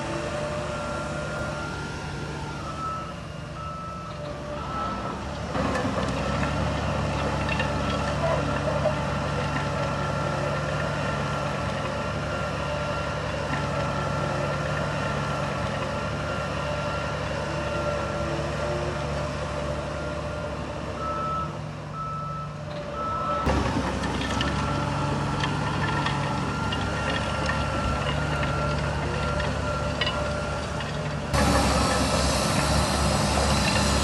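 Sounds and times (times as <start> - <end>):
diesel engine running: 0.0 - 34.0
reversing alarm beeping: 0.4 - 5.2, 21.0 - 23.5.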